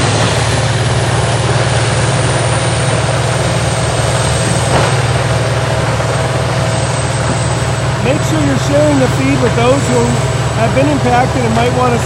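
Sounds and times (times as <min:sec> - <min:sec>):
diesel engine droning: 0:00.0 - 0:12.0
sharp knock: 0:04.7 - 0:05.2.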